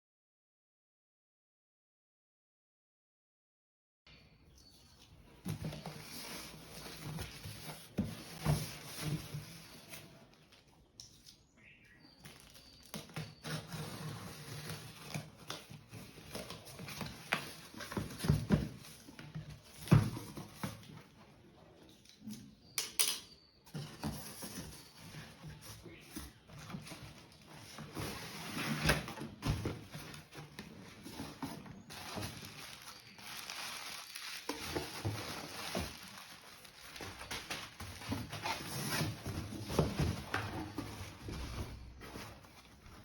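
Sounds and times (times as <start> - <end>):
packaging rustling: 12.2 - 21.0, 23.8 - 43.0.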